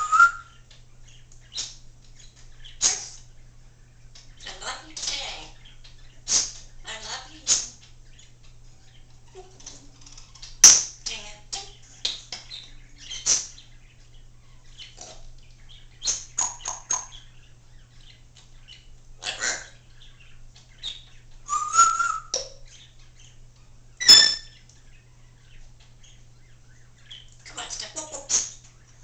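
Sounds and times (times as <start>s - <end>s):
parrot clicks chirps and whistles: 1.3s - 1.8s, 10.4s - 11.0s, 12.0s - 13.6s, 20.8s - 22.6s, 24.0s - 24.8s.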